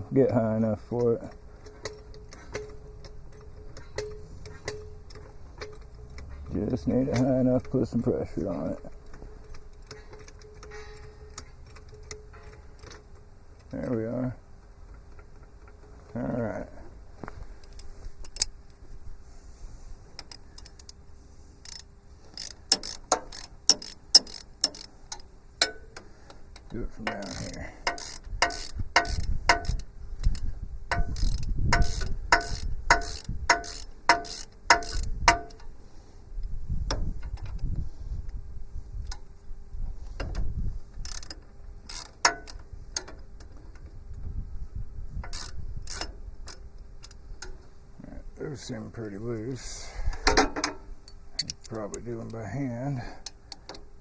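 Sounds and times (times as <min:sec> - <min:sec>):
hand tools clicking on metal: 0:00.0 - 0:18.6, 0:21.6 - 0:35.7, 0:40.2 - 0:43.9, 0:45.2 - 0:47.6, 0:50.1 - 0:52.5.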